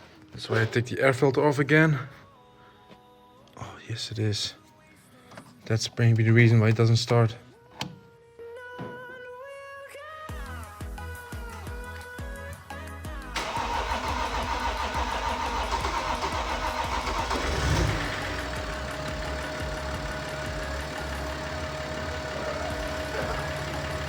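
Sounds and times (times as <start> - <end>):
diesel engine idling: 13.4 - 24.0
starter motor cranking engine: 13.4 - 24.0.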